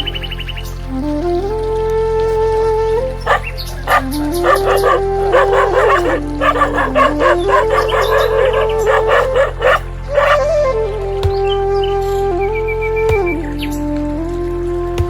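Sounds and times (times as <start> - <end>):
slow flute melody: 0.9 - 4.4
dog barking sharply: 3.3 - 10.4.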